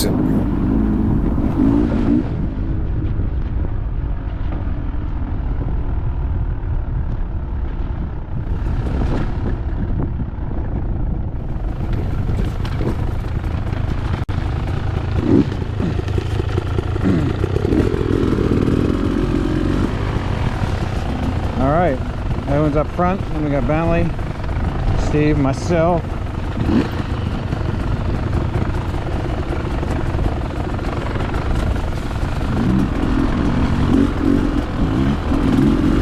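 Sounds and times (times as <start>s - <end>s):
dirt bike engines revving: 0.0s - 1.8s, 15.0s - 36.0s.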